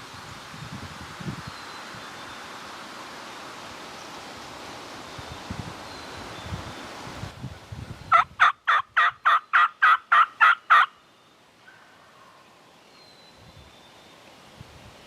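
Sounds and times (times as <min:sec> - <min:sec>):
faint wind: 0:00.0 - 0:15.0
leaf rustle: 0:00.0 - 0:15.0
turkey yelps: 0:08.1 - 0:10.9.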